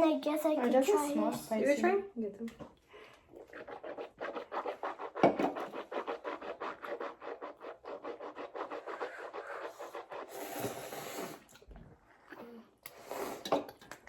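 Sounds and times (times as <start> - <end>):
rapid scratching strokes: 3.4 - 11.4.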